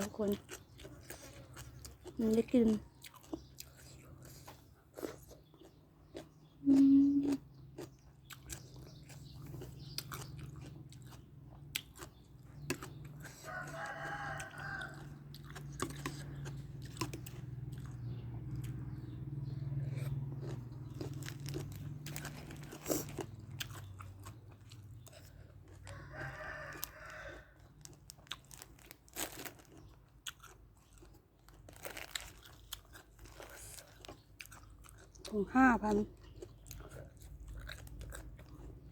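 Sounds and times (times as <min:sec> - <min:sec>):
chewing crisp food: 0:00.0 - 0:38.9
rooster crowing: 0:13.3 - 0:15.3, 0:25.8 - 0:27.6.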